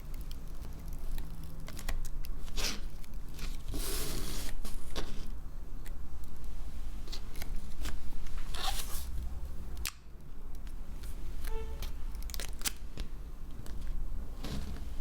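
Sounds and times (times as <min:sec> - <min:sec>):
steady low hum: 0:05.3 - 0:15.0.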